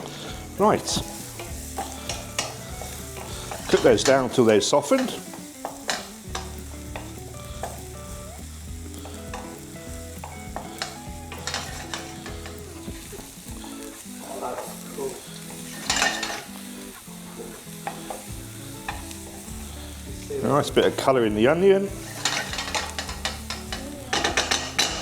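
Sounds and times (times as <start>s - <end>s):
music with bass line: 0.0s - 4.3s, 6.2s - 14.0s, 18.2s - 25.0s
utensil scraping a pan: 0.0s - 7.9s, 9.0s - 12.8s, 15.4s - 16.6s, 21.9s - 25.0s
onions sizzling in a pan: 0.0s - 25.0s.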